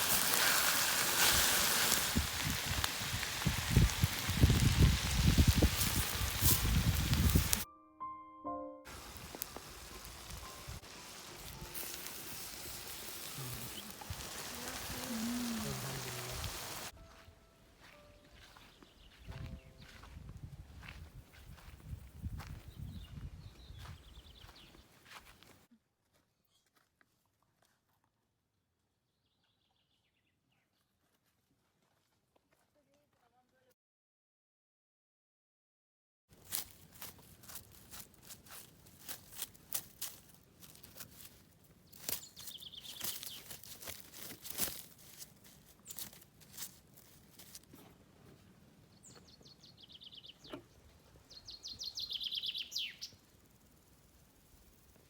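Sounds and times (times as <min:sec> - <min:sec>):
songbird trilling: 0:42.2 - 0:43.5, 0:51.3 - 0:53.2
distant bird chirps: 0:49.0 - 0:53.7.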